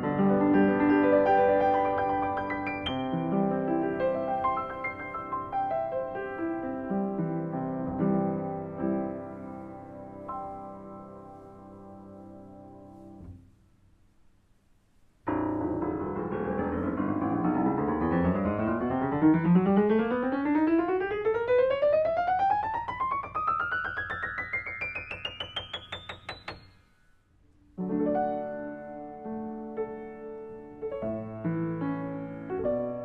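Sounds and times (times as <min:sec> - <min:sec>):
fast ascending piano run: 0:00.0 - 0:13.4, 0:15.3 - 0:27.0
piano chord ringing: 0:15.3 - 0:21.8.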